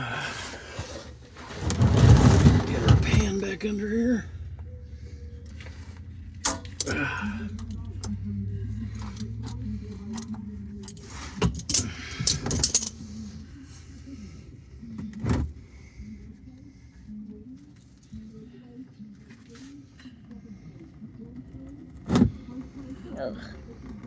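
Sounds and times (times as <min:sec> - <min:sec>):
steady low hum: 0:00.0 - 0:24.0
oil drain pan scraping: 0:00.9 - 0:03.3
wrench clinking on metal: 0:10.8 - 0:13.0.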